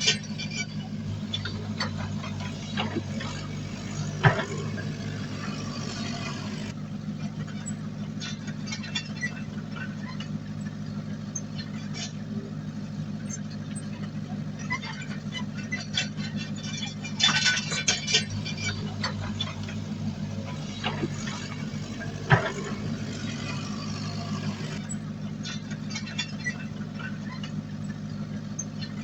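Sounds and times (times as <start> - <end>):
metallic clanks and knocks: 0.0 - 6.7, 15.7 - 24.8
diesel engine of heavy machinery: 0.0 - 29.0.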